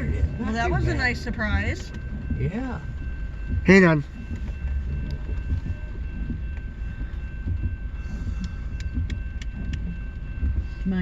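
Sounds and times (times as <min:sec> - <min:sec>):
low rumble of vehicles: 0:00.0 - 0:11.0.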